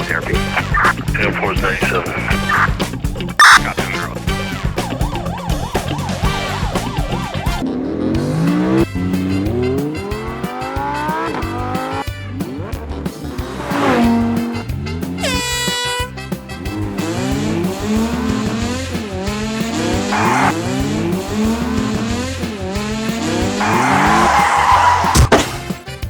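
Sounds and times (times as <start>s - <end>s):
horn blast: 0.0s - 7.6s, 13.6s - 17.7s
race car engine revving: 0.0s - 15.8s, 16.6s - 25.6s
tyres skidding: 0.0s - 25.8s
background music: 0.0s - 26.0s.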